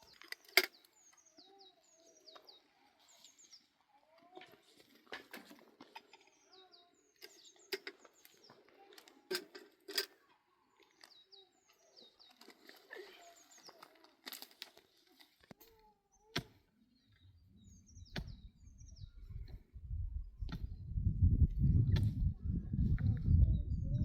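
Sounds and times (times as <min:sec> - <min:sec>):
small bird singing: 0:00.0 - 0:04.9, 0:05.8 - 0:09.4, 0:10.5 - 0:15.2, 0:15.8 - 0:24.0.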